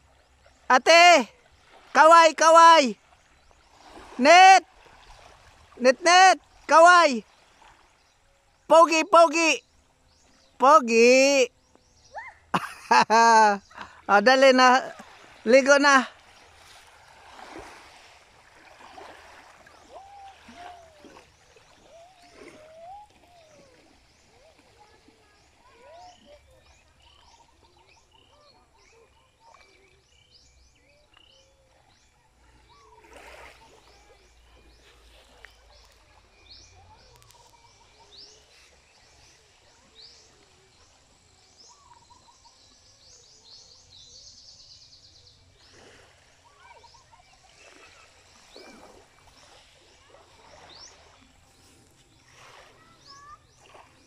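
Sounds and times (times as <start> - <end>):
birds chirping and calling: 19.2 - 40.9, 41.5 - 54.0.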